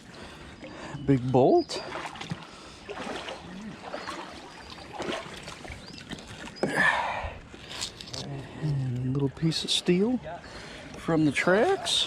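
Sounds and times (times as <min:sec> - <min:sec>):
shallow water sloshing: 0:00.0 - 0:08.2.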